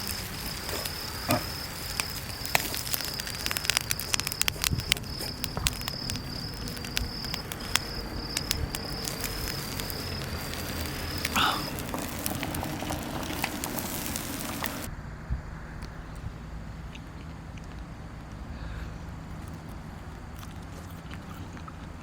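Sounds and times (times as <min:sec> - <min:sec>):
charcoal fire crackling: 0:00.0 - 0:14.9
insect trilling: 0:00.0 - 0:14.9.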